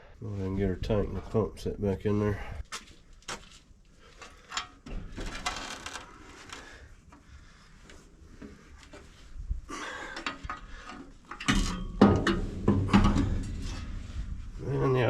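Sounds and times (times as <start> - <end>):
metal parts clanking: 10.2 - 13.8.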